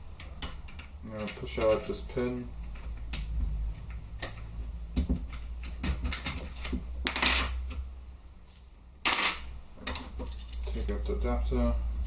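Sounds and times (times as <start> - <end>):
light metallic clicks and clinks: 9.9 - 11.1.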